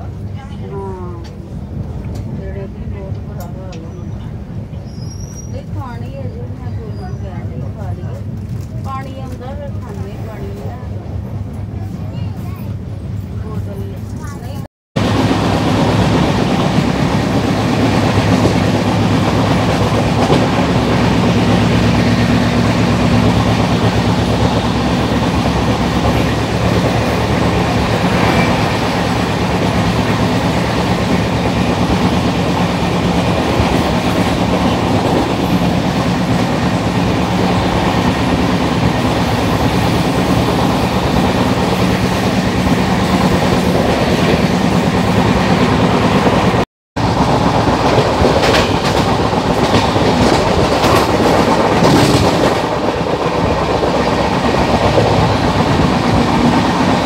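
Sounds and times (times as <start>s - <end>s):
train wheels rumbling on rails: 0.0s - 57.0s
clickety-clack of rail joints: 1.0s - 6.2s, 7.5s - 12.8s, 15.3s - 44.4s, 47.3s - 57.0s.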